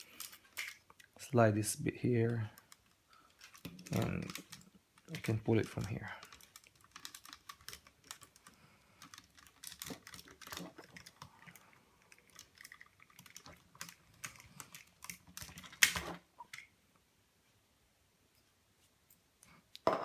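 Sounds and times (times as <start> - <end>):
plastic toy parts clicking: 0.0 - 1.1, 2.3 - 11.5, 12.1 - 16.7.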